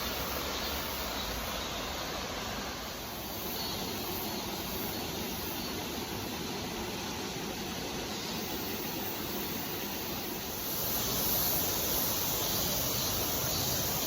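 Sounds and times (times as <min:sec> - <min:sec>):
mountain stream rushing: 0:00.0 - 0:14.0.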